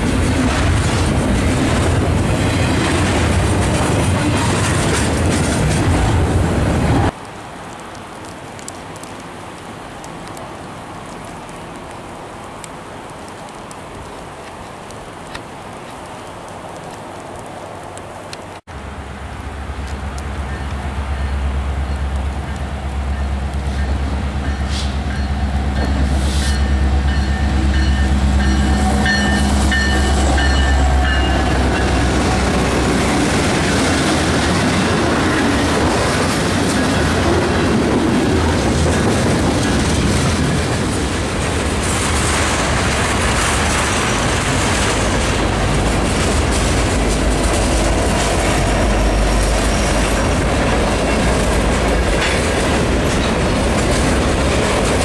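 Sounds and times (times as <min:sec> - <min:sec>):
steel wheels rumbling on rail: 0:00.0 - 0:07.2, 0:18.7 - 0:55.0
wheels clicking over rail joints: 0:00.0 - 0:12.0, 0:19.8 - 0:55.0
locomotive engines rumbling: 0:17.0 - 0:55.0.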